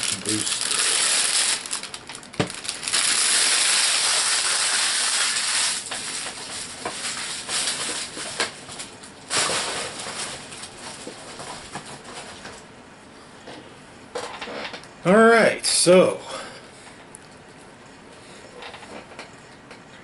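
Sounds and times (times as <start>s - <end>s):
wrapper crinkling: 0.0s - 12.6s.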